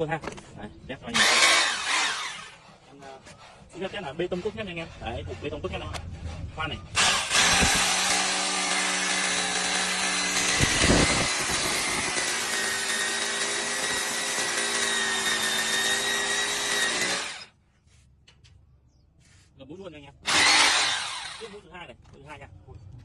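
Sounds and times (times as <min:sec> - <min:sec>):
hammer drill boring into concrete: 0:01.1 - 0:02.6, 0:07.0 - 0:17.5, 0:20.2 - 0:21.6.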